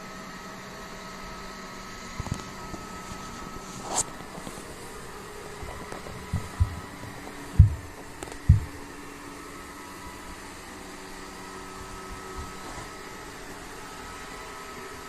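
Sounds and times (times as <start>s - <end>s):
steady mechanical hum: 0.0s - 15.0s
dull low thuds: 5.7s - 8.9s.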